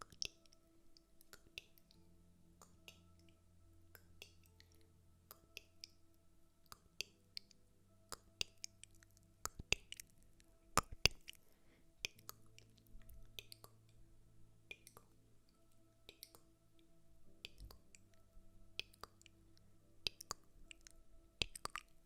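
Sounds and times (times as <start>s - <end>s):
faint steady hum: 0.0s - 22.0s
soft clicks and taps: 0.0s - 22.0s.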